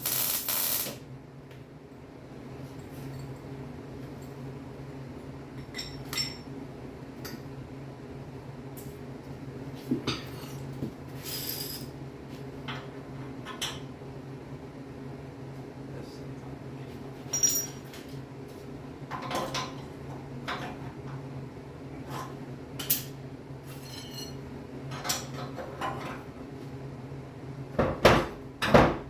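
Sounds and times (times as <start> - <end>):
steady low hum: 0.0 - 2.5
metal tools clinking: 17.3 - 17.8.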